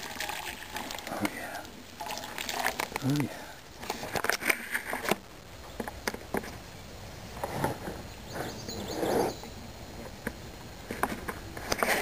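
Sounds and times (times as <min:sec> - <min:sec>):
clicks and rustles: 0:03.8 - 0:05.2.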